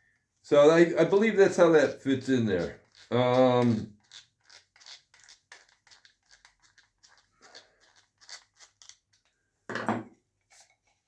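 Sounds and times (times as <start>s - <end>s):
small metal parts clicking and scraping: 2.6s - 9.2s.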